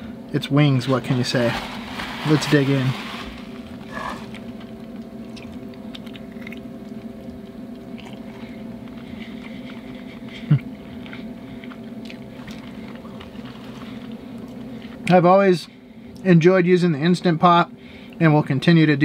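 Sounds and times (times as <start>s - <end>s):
low steady hum: 0.0s - 19.0s
person chewing: 3.6s - 15.1s
wet mouth clicks: 5.3s - 7.0s.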